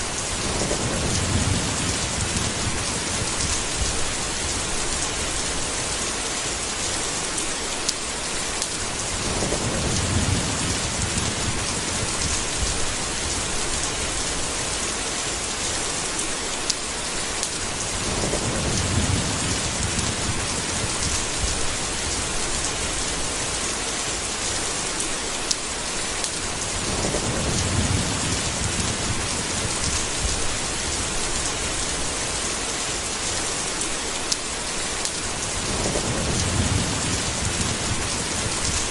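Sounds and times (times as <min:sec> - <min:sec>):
heavy rain: 0:00.0 - 0:38.9
thunder rolling: 0:00.2 - 0:05.0, 0:09.0 - 0:14.7, 0:17.8 - 0:22.9, 0:26.6 - 0:31.9, 0:35.4 - 0:38.9.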